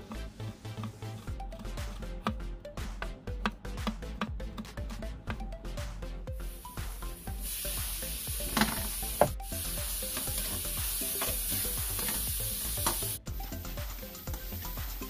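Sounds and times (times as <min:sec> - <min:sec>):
tomatoes sizzling in hot oil: 0:06.6 - 0:13.2.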